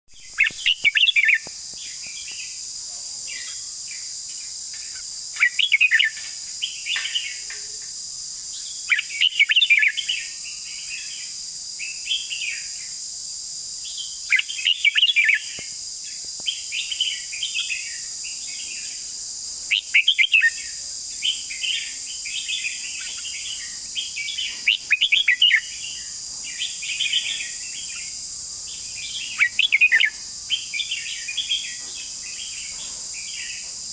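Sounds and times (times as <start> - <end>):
bird warbling song: 0.1 - 2.6, 4.8 - 7.8, 8.5 - 11.3, 13.9 - 19.0, 19.7 - 33.7
high-pitched hiss: 0.1 - 33.9.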